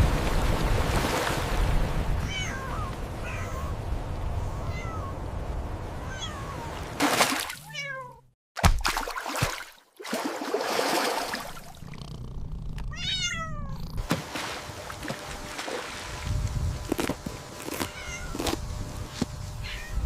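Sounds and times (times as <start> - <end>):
rushing water: 0.0 - 7.6, 8.8 - 11.8
kitten meowing: 2.2 - 3.7, 12.9 - 13.8, 19.6 - 20.0.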